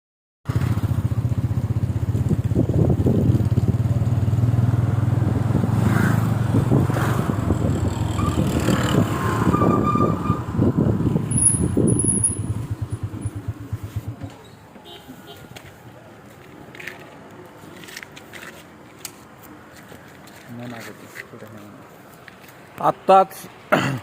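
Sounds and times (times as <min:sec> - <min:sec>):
vehicle engine running: 0:11.3 - 0:14.6.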